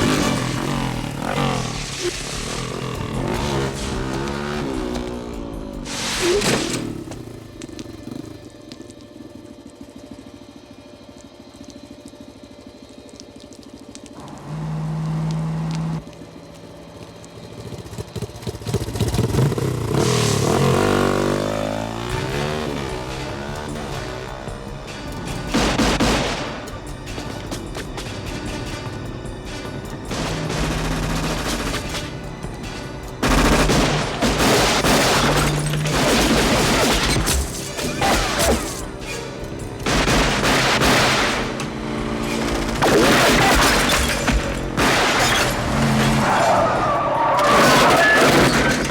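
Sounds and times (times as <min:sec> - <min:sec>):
rapid gunfire bursts: 0:00.0 - 0:04.8, 0:17.7 - 0:28.8, 0:29.4 - 0:46.0
action film music: 0:00.0 - 0:48.9
clatter: 0:00.0 - 0:48.9
motorcycle engine revving: 0:00.0 - 0:48.9.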